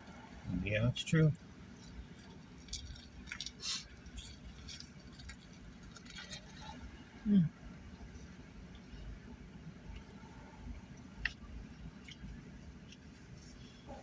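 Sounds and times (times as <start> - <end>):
person chewing food: 1.7 - 6.9, 10.9 - 14.0.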